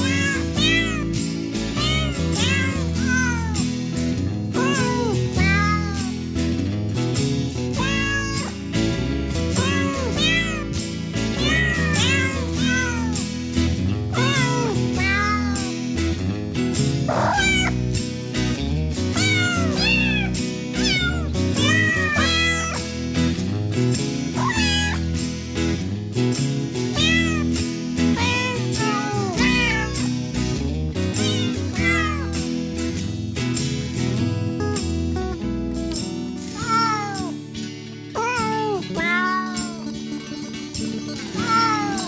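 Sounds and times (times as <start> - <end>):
cat meowing: 0.0 - 3.7, 4.6 - 6.2, 7.7 - 8.6, 9.6 - 10.8, 11.4 - 13.2, 14.1 - 15.8, 17.1 - 17.9, 19.1 - 22.8, 24.4 - 25.1, 26.9 - 30.1, 31.2 - 32.4, 36.6 - 37.4, 38.2 - 40.0, 41.4 - 42.0
background music with bass line: 0.0 - 42.0.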